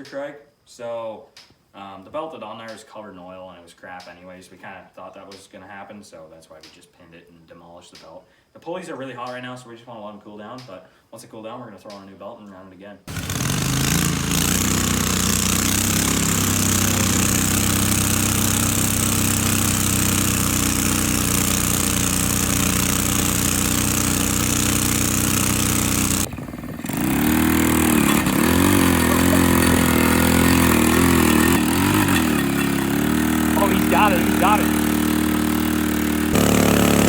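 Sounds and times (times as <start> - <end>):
small engine running: 13.1 - 37.0.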